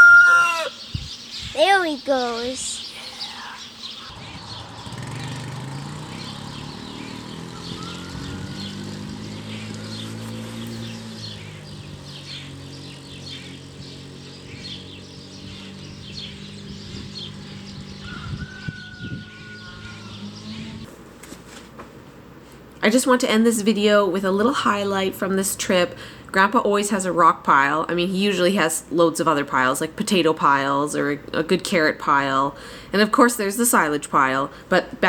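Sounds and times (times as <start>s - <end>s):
small birds chirping: 0.0s - 20.9s
engine humming: 2.0s - 35.0s.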